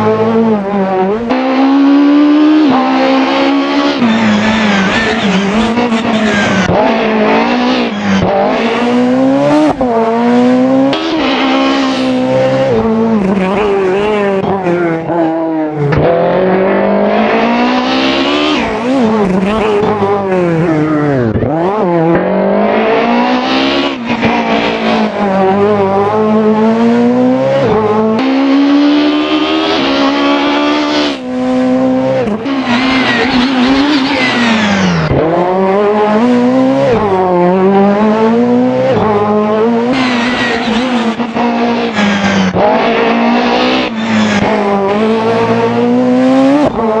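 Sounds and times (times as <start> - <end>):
rally car engine revving hard: 0.0 - 47.0.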